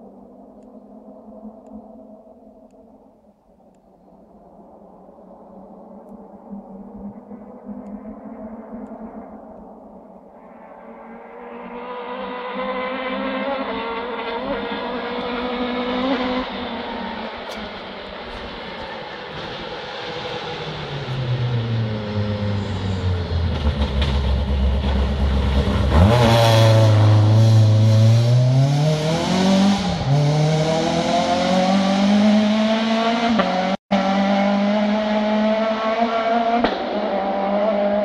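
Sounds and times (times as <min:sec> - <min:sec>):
car engine revving: 0:11.2 - 0:38.0.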